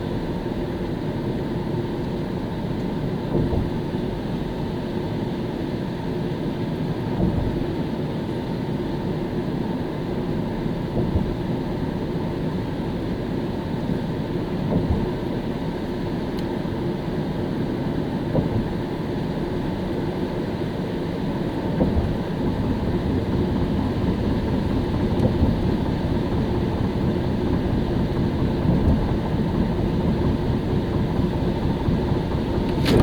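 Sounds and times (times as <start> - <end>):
car engine hum: 0.0 - 33.0
soft bump: 14.7 - 15.1
tyre noise on wet road: 21.3 - 33.0.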